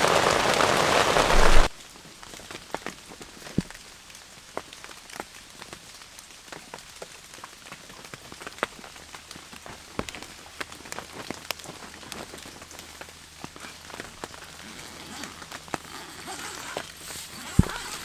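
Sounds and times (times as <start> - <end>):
raindrops striking sharply: 0.0 - 1.8
heavy rain on a tent: 0.0 - 18.0.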